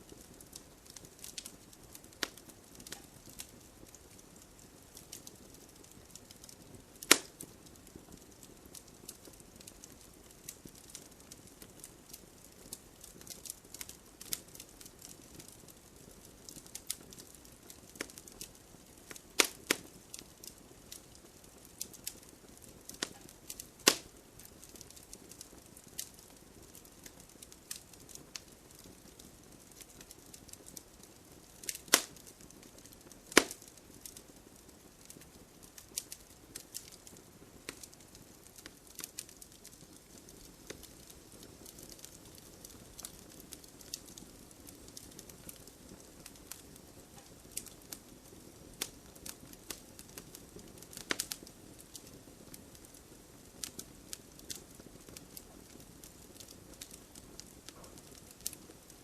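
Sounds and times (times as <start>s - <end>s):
campfire crackling and popping: 0.0s - 59.0s
faint fire hiss: 0.0s - 59.0s.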